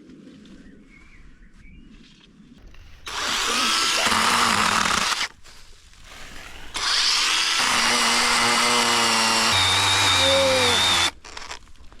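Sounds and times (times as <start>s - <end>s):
chainsaw cutting brush: 2.6s - 12.0s
chainsaw idling: 3.0s - 5.3s, 6.4s - 11.4s
person talking: 3.2s - 5.0s, 10.0s - 11.1s.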